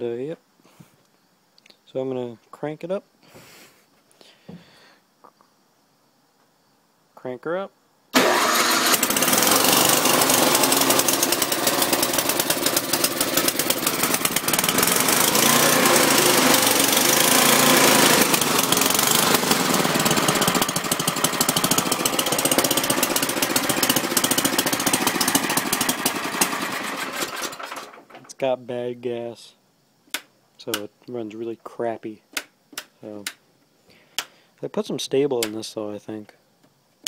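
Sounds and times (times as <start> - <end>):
snowblower engine running rough: 8.2 - 28.0.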